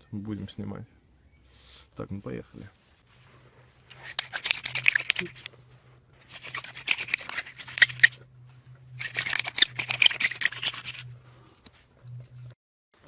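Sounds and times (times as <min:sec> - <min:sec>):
wooden sticks scraping together: 0:03.2 - 0:08.2, 0:08.9 - 0:11.8.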